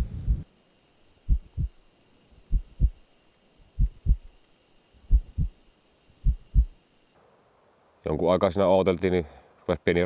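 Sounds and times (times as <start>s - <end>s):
heartbeat thumps: 0.0s - 0.4s, 1.3s - 1.8s, 2.4s - 3.0s, 3.7s - 4.4s, 5.0s - 5.6s, 6.2s - 6.8s
faint high steady tone: 0.0s - 8.0s.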